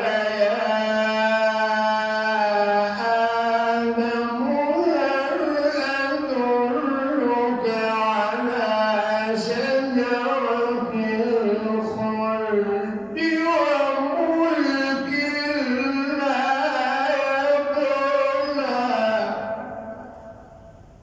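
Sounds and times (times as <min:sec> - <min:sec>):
man reciting melodically: 0:00.0 - 0:20.1.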